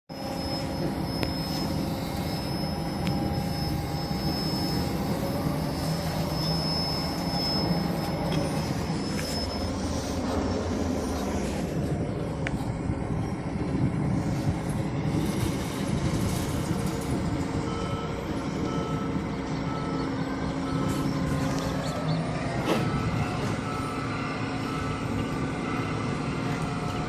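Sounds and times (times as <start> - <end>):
faint high beep: 0.1 - 11.7, 17.6 - 25.4
heavy diesel machinery rumble: 0.1 - 27.0.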